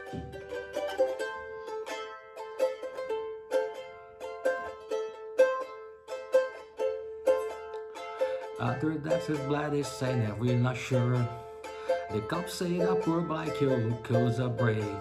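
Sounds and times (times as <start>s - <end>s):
ukulele strumming: 0.0s - 15.0s.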